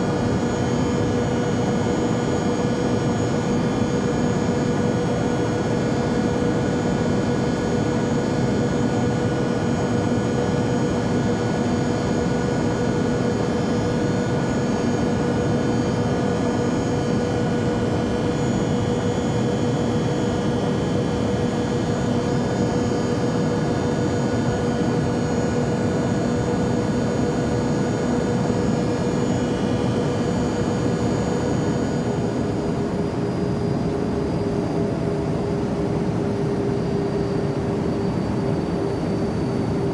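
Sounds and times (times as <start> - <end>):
airplane drone in flight: 0.0 - 39.9.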